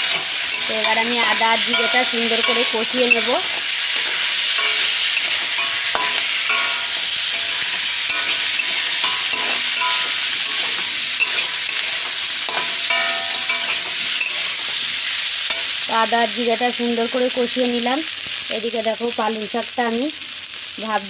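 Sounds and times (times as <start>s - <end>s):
spatula scraping pan: 0.0s - 15.8s
vegetables sizzling in oil: 0.0s - 21.0s.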